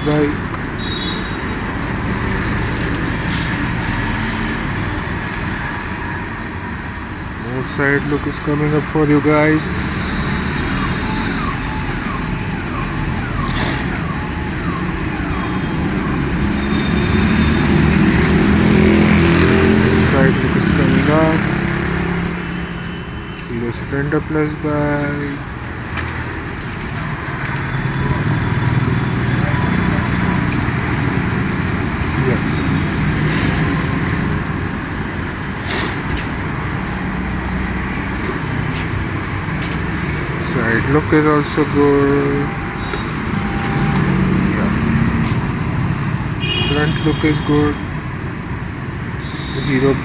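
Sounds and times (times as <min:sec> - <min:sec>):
street traffic noise: 0:00.0 - 0:50.0.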